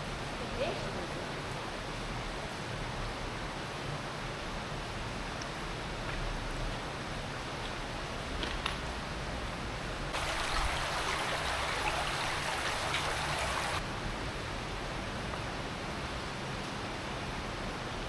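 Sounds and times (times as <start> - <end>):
running water in a cave: 9.0 - 13.9
splashing water hiss: 10.2 - 13.8.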